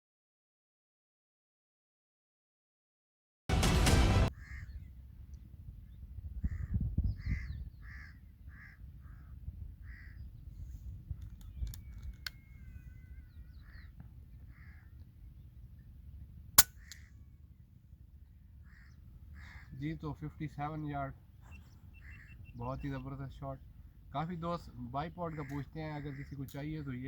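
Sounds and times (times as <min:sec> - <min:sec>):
crows cawing: 0:04.3 - 0:04.8, 0:06.4 - 0:10.2, 0:14.5 - 0:15.0, 0:18.6 - 0:19.8, 0:21.9 - 0:22.5, 0:25.2 - 0:26.6
wind rumble on microphone: 0:04.3 - 0:16.4
air rifle shot: 0:16.6 - 0:17.1.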